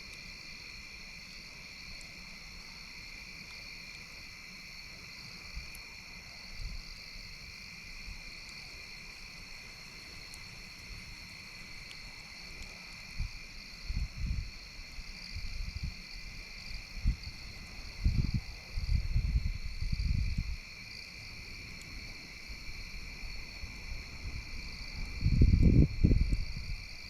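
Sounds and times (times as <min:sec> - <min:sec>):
crickets chirping: 0:00.0 - 0:27.0
wind rumble on microphone: 0:05.5 - 0:07.1, 0:12.7 - 0:27.0.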